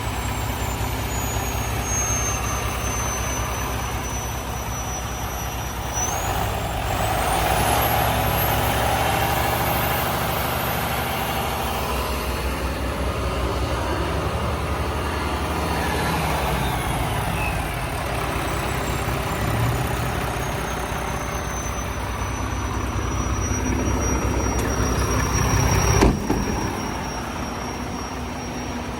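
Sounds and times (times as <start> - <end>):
dump truck diesel engine: 0.0 - 28.9
high whine: 8.3 - 28.9.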